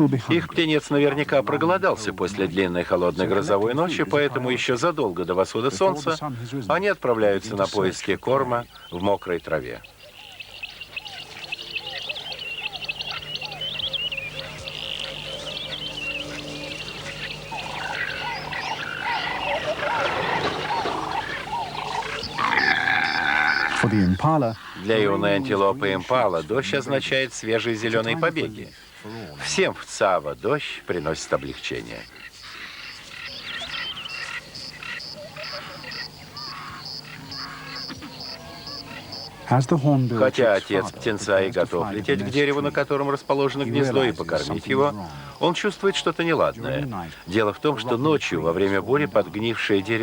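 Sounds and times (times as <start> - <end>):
small birds chirping: 0.0 - 50.0
frog calls: 7.6 - 50.0
birds chirping and whistling: 8.7 - 24.0, 32.5 - 39.4.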